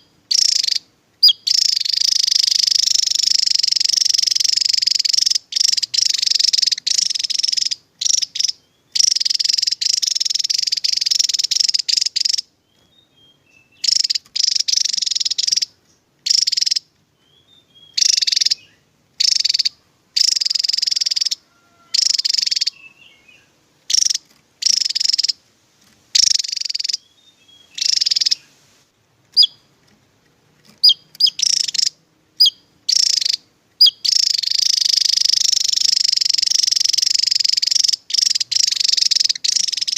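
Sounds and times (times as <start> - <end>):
bird fast high trilling: 17.8 - 25.4, 26.2 - 28.6, 29.3 - 29.7, 30.7 - 39.9.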